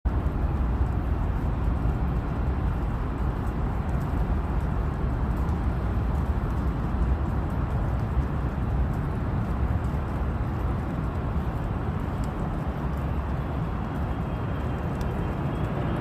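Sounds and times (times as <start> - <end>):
jet airliner rumbling as it lands: 10.8 - 16.0.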